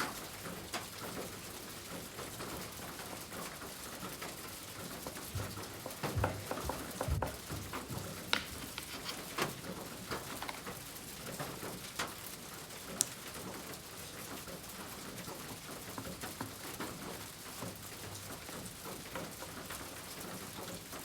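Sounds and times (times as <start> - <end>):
oil pastel scratching on paper: 8.5 - 9.6.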